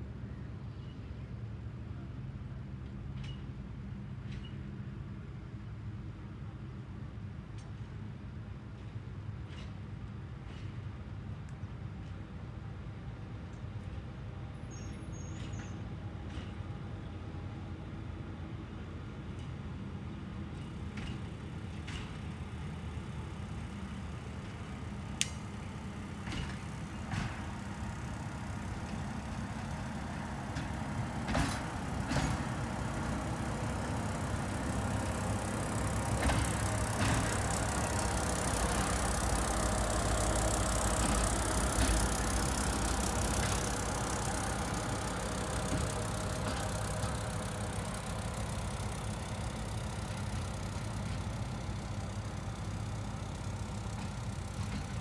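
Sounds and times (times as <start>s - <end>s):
diesel engine drone: 19.9s - 55.0s.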